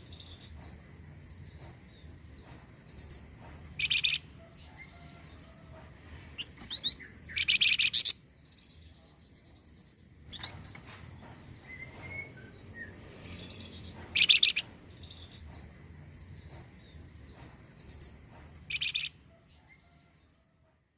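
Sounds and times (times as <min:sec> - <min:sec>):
bird chirping rapidly: 0:03.0 - 0:04.2, 0:06.4 - 0:08.3, 0:12.4 - 0:15.4, 0:18.0 - 0:19.1.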